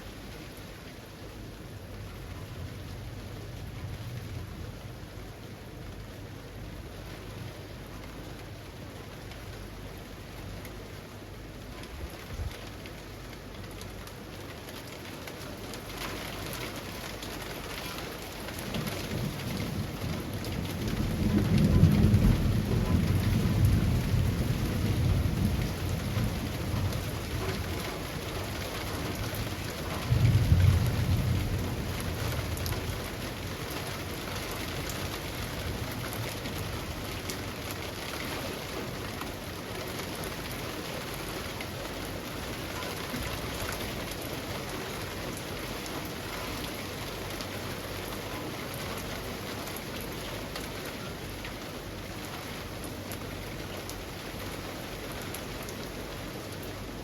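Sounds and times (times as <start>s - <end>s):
rain falling on trees: 0.0s - 57.0s
thunder rumbles: 18.6s - 38.2s.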